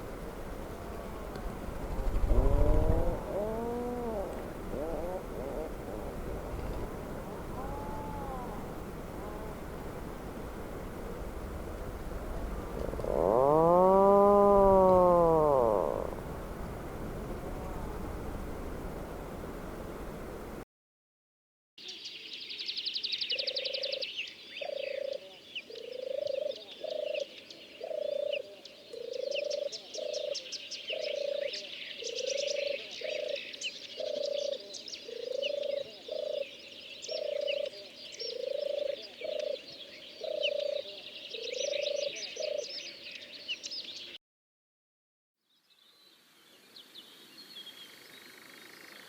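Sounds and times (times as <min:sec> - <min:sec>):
bird repeating low calls: 0:00.8 - 0:10.1, 0:12.7 - 0:16.6, 0:23.4 - 0:44.2
songbirds chirping and trilling: 0:21.8 - 0:44.2.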